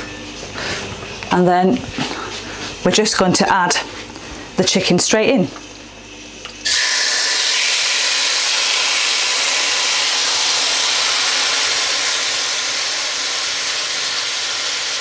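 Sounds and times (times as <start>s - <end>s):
chicken sizzling in hot oil: 6.6s - 15.0s.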